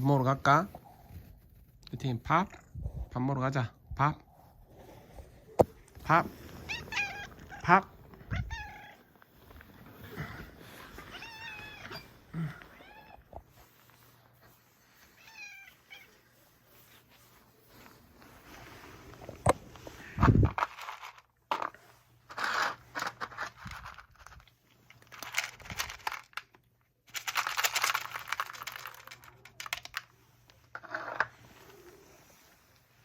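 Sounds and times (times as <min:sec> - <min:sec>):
packaging rustling and crackling: 0:27.1 - 0:30.1.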